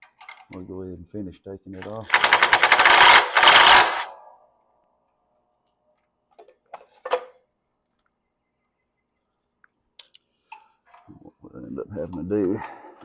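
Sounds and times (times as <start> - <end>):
impact wrench hammering: 2.1 - 4.2.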